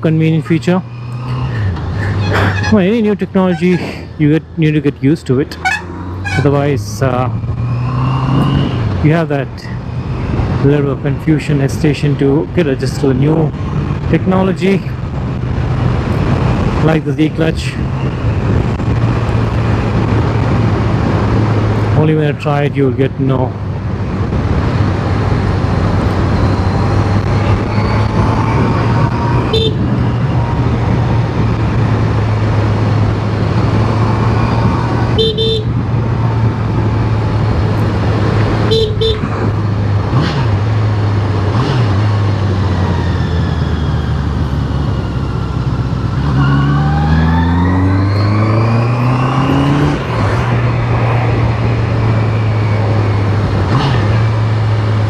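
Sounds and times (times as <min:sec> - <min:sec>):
wind and road noise: 0:00.0 - 0:55.0
short horn beeps: 0:35.2 - 0:35.7, 0:38.7 - 0:39.2.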